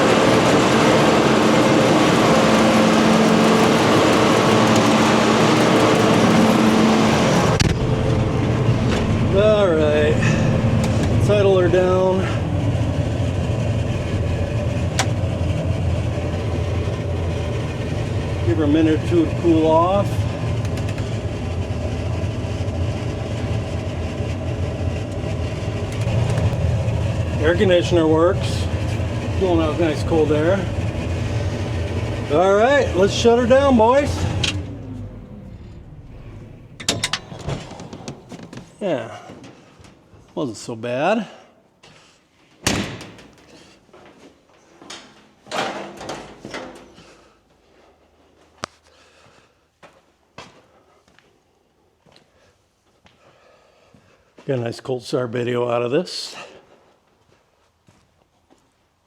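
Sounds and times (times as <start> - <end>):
diesel engine idling: 0.0 - 38.8
metal cab door clunking and rattling: 36.2 - 38.8.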